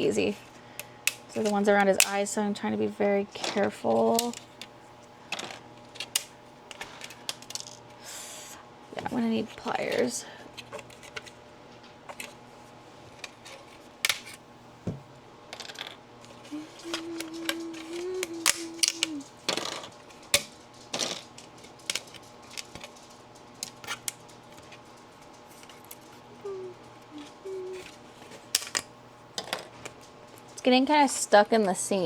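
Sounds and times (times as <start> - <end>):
steady hum-like tone: 0.0 - 32.0
plastic clicks and snaps: 16.8 - 20.5.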